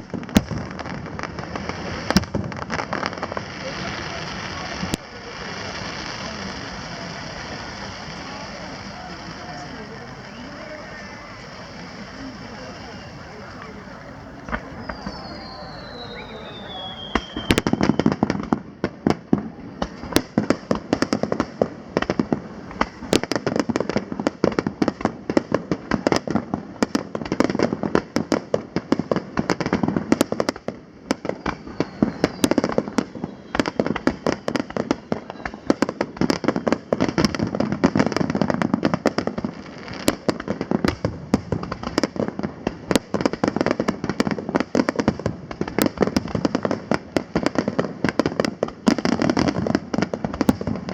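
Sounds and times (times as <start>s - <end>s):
fireworks crackling: 0.0s - 50.9s
firework shells bursting: 7.4s - 50.9s.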